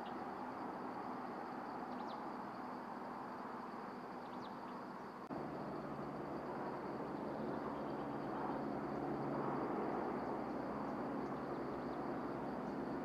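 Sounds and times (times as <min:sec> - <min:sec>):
outdoor background noise: 0:00.0 - 0:13.0
low engine-like hum: 0:05.2 - 0:13.0.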